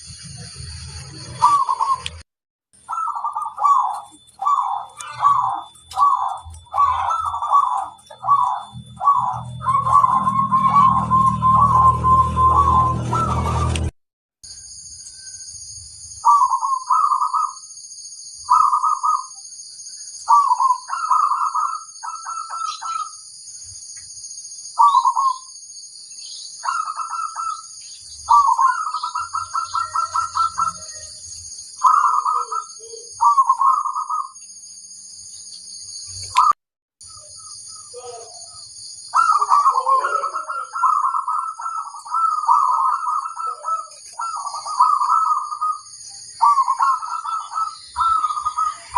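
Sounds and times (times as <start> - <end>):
dove cooing: 1.2 - 2.2, 2.8 - 13.9, 16.2 - 17.6, 18.5 - 19.3, 20.3 - 23.2, 24.8 - 25.5, 26.6 - 27.7, 28.3 - 31.1, 31.8 - 34.4, 39.1 - 48.9.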